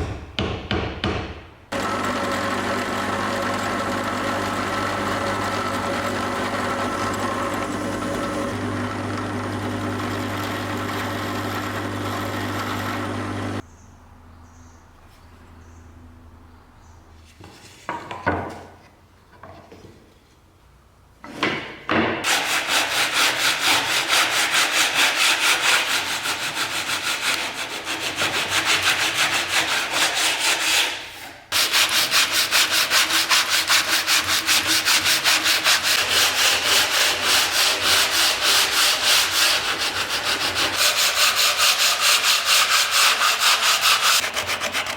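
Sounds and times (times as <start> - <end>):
motor-driven tool running: 1.7 - 13.6
hand sanding strokes: 22.3 - 44.9.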